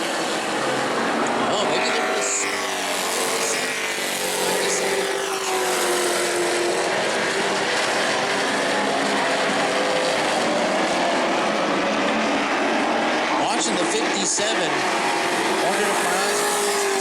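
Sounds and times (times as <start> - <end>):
race truck engines droning: 0.0 - 17.0.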